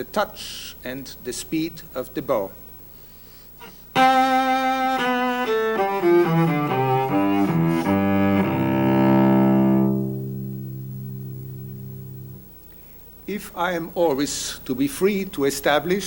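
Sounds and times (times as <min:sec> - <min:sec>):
bowed cello: 0:03.6 - 0:12.6.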